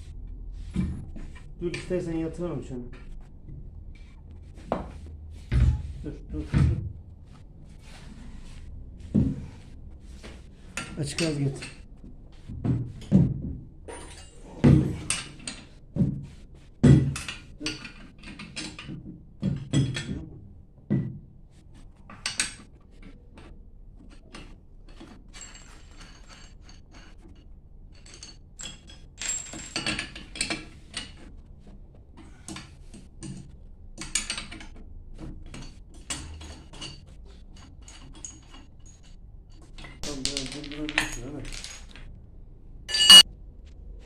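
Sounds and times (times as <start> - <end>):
metal tools knocking and clinking: 10.8 - 11.9, 12.6 - 16.2, 16.8 - 20.2, 24.1 - 31.2, 37.6 - 42.1, 42.9 - 43.2.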